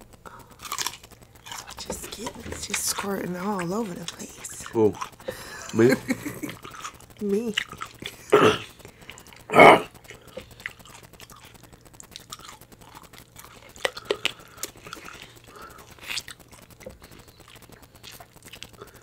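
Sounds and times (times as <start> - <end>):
wet chewing and mouth smacks: 0.4 - 19.0.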